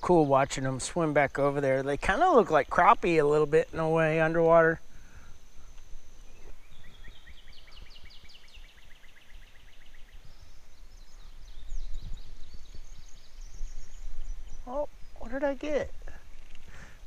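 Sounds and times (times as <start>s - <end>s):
bird trilling chirps: 4.0s - 16.9s.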